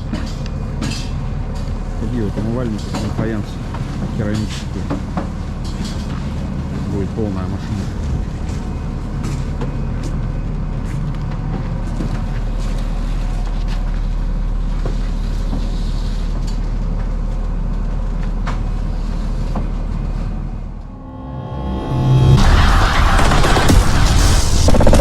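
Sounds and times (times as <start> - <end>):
engine rumbling: 5.4 - 10.5, 19.3 - 25.0.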